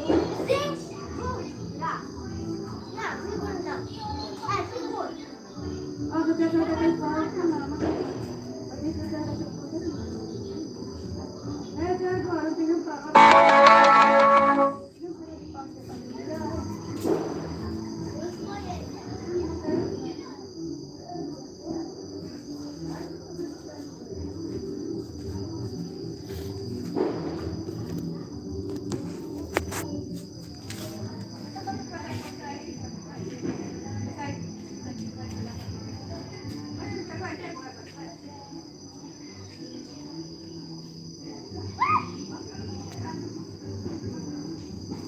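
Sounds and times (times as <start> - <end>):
crickets trilling: 0.0 - 45.0
low background murmur: 0.0 - 45.0
loud whistle-like call: 13.2 - 14.8.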